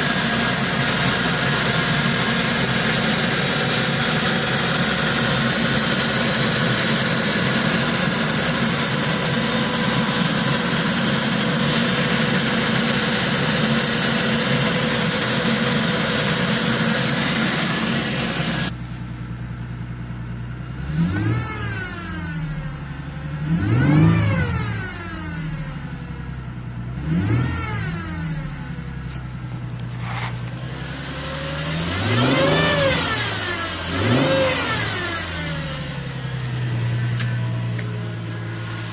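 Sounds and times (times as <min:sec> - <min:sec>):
car engine revving: 0:00.0 - 0:18.8, 0:20.6 - 0:26.1, 0:26.7 - 0:38.9
metallic engine noise: 0:31.8 - 0:38.9.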